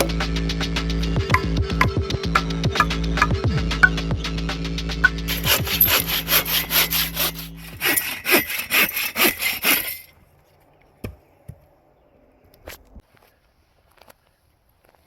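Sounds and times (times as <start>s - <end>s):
hand saw cutting wood: 5.0s - 10.1s.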